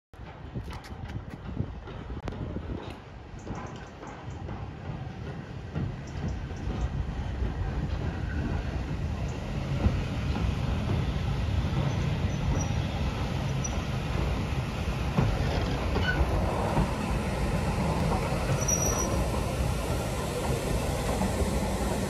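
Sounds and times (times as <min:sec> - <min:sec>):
train wheels rumbling on rails: 0:00.2 - 0:22.0
faint high squeals: 0:18.5 - 0:19.2.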